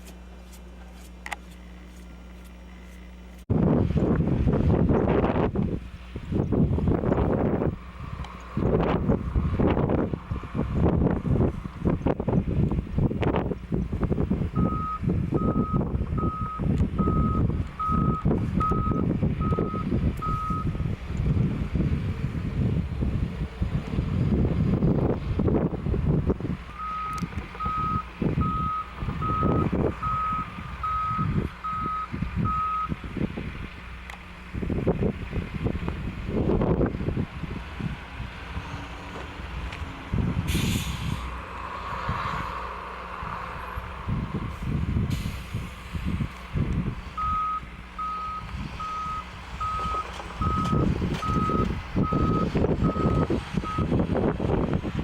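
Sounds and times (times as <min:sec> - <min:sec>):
gusty low rumbling: 0:03.4 - 0:55.0
vehicle backup alarm beeping: 0:14.5 - 0:20.8, 0:26.7 - 0:33.0, 0:47.1 - 0:54.0.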